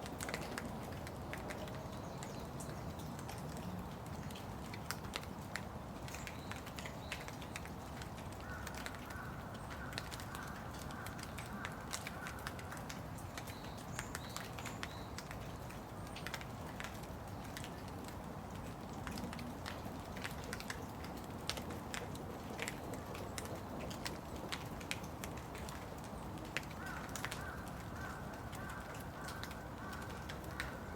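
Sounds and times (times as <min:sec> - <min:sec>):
raindrops tapping close by: 0:00.0 - 0:30.9
steady rain: 0:00.0 - 0:30.9.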